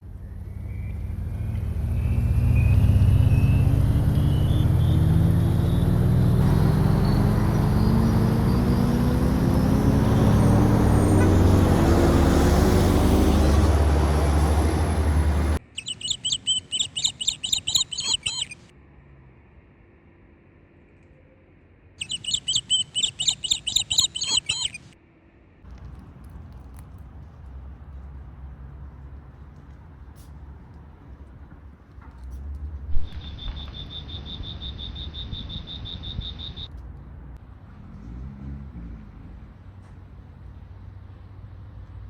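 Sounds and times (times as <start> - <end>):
small bird chirping: 0.2 - 10.2, 15.6 - 18.7, 22.0 - 25.0, 33.0 - 36.7
engine running loudly: 1.0 - 15.6.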